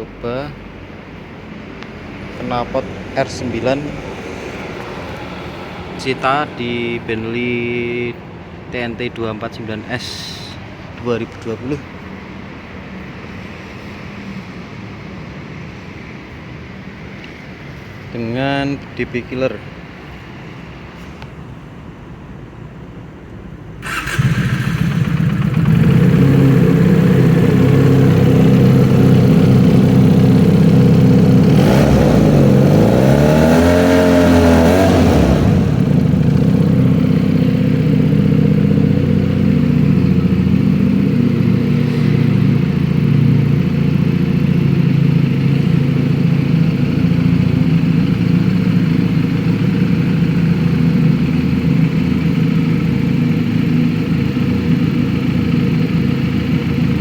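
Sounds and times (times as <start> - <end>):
motorcycle engine idling and revving: 0.0 - 8.7, 23.5 - 57.0.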